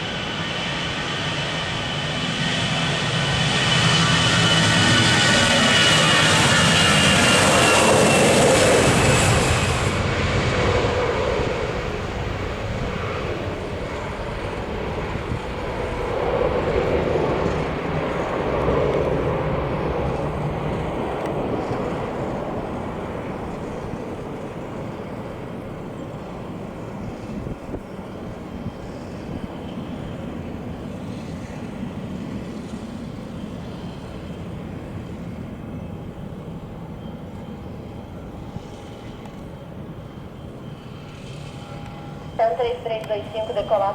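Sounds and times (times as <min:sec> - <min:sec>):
jet airliner roar: 0:00.0 - 0:43.9.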